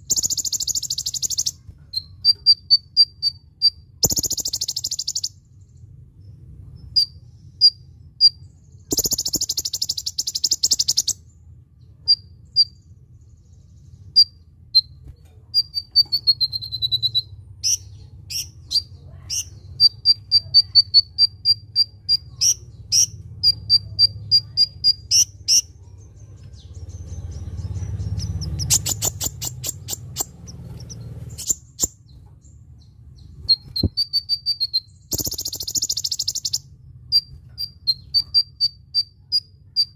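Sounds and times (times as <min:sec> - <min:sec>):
faint low hum: 0:00.0 - 0:39.9
sunbird singing: 0:00.0 - 0:39.9.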